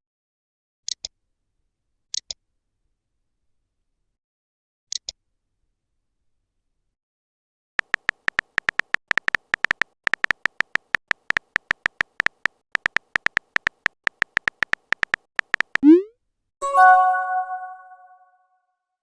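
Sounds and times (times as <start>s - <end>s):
short electronic beeps: 15.6s - 18.2s.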